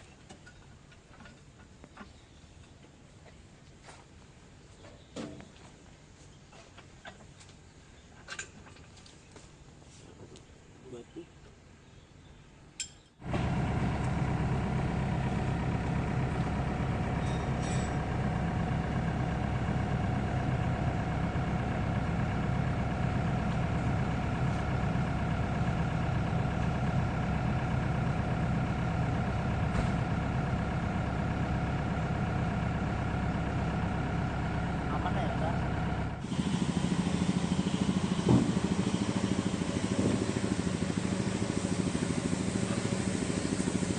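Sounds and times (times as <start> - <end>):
excavator engine idling: 13.2 - 43.9.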